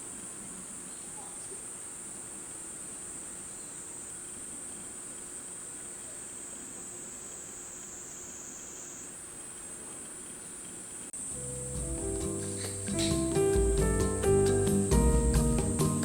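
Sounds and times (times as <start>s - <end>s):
insects chorus: 0.0s - 16.0s.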